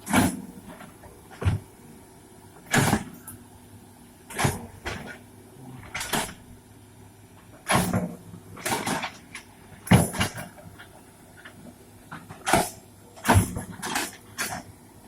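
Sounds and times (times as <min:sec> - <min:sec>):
excavator engine drone: 0:03.1 - 0:07.1.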